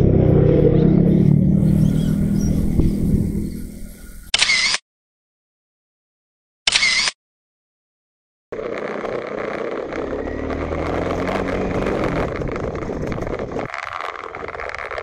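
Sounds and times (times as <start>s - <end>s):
wind rush: 1.5s - 4.3s, 8.6s - 15.0s
motorcycle engine running: 8.5s - 15.0s.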